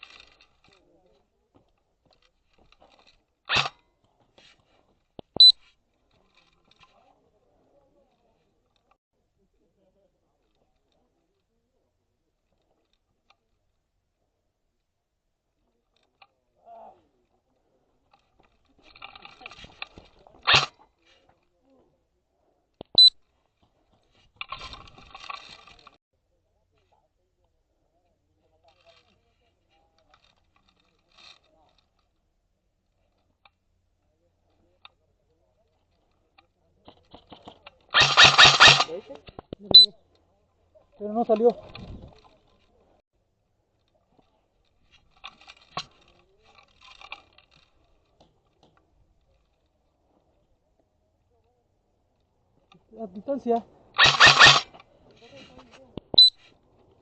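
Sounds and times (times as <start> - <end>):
sharp click: 3.5 - 3.8, 38.0 - 39.9, 54.0 - 54.9
scratchy rustling: 53.4 - 57.0.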